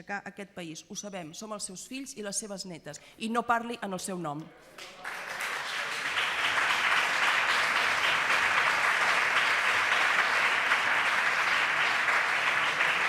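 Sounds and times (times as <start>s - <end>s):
audience applause: 4.8s - 13.0s.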